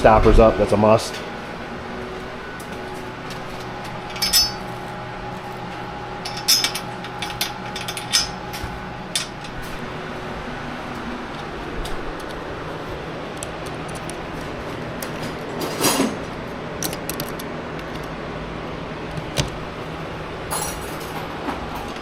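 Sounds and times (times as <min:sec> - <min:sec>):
steady hum: 0:00.0 - 0:22.0
small hardware clinking: 0:04.1 - 0:04.7, 0:06.2 - 0:09.6.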